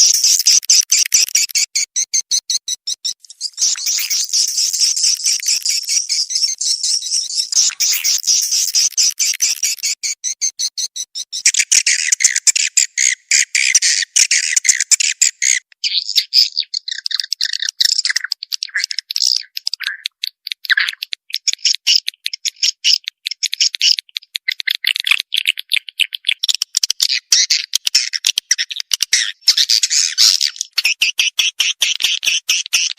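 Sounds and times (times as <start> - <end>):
swiftlet chirps and twitters: 0.0 - 19.6.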